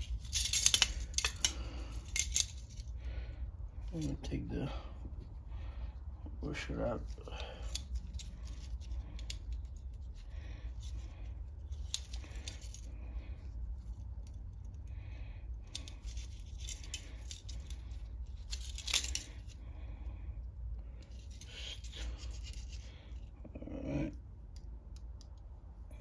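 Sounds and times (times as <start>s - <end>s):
metal parts clicking and clinking: 0.0s - 2.9s, 6.9s - 12.9s, 15.6s - 19.6s, 21.0s - 23.2s.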